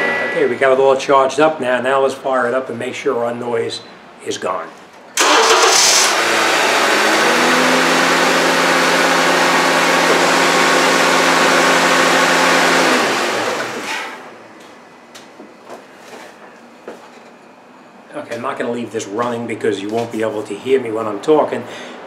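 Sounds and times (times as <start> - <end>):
car engine starting and idling: 5.2 - 14.4.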